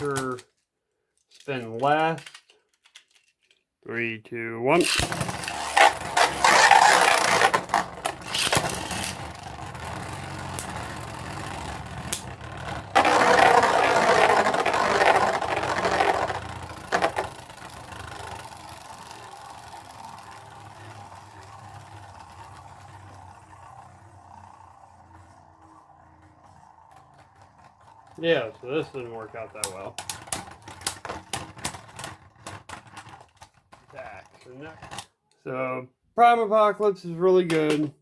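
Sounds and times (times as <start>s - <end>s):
spinning tops whirring: 4.7s - 35.0s
spinning tops clattering: 4.8s - 33.6s
spinning tops grinding: 4.8s - 35.0s.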